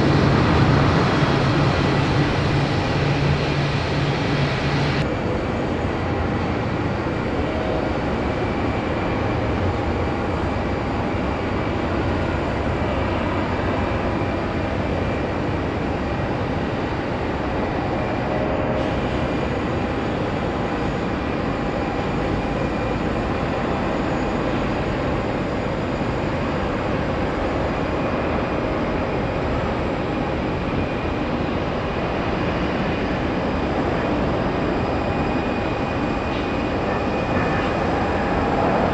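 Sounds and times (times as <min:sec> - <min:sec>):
jet engines rushing: 0:00.0 - 0:38.9.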